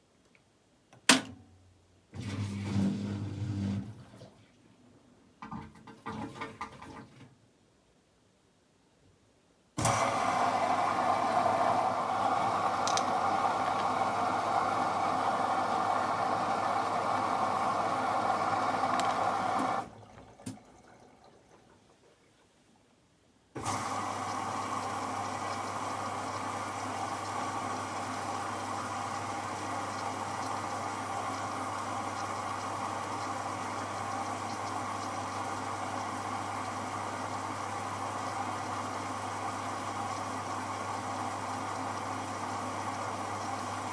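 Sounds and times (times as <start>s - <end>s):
click: 0.2s - 1.4s, 12.8s - 13.2s
washing machine running hum: 2.1s - 4.5s, 9.8s - 22.2s, 23.6s - 43.9s
water rushing through inlet valve: 9.8s - 21.9s, 23.6s - 43.9s.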